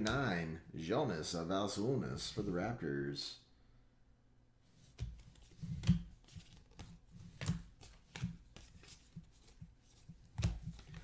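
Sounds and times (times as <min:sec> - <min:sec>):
trading cards flipping and sliding: 0:04.8 - 0:11.0.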